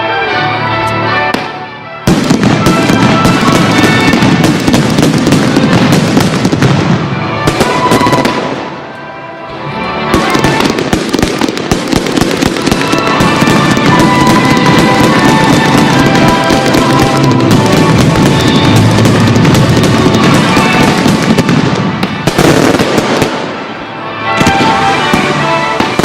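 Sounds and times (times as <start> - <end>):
music soundtrack: 0.0 - 26.0
fireworks crackling bursts: 1.2 - 9.2, 9.8 - 26.0.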